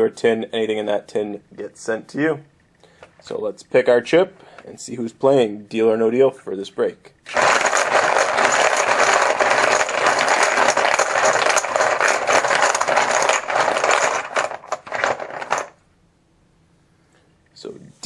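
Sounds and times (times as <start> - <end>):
chips clattering in a container: 7.3 - 15.8.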